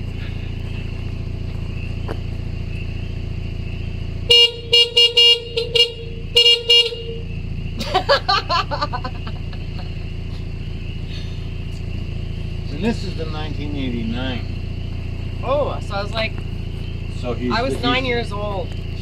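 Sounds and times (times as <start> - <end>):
engine idling: 0.0 - 19.0
vehicle horn short beeps: 4.2 - 7.3.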